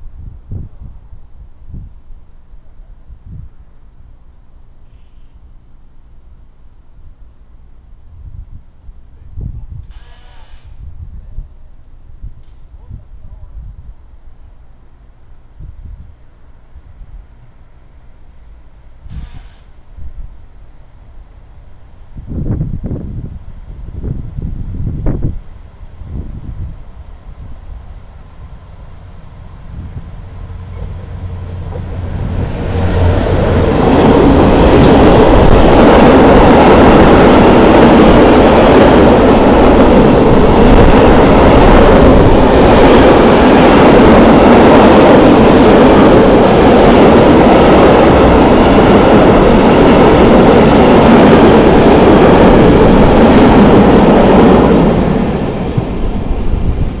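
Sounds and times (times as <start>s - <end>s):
diesel locomotive passing: 13.2s - 57.0s.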